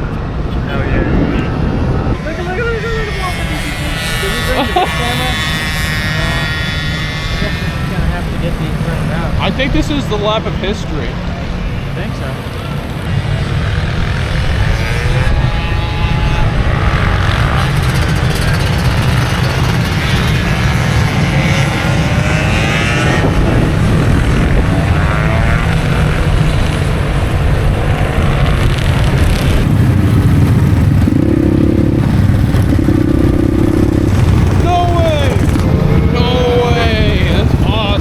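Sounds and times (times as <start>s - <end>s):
motorcycle engines revving: 0.0s - 38.0s
low rumble: 23.0s - 38.0s.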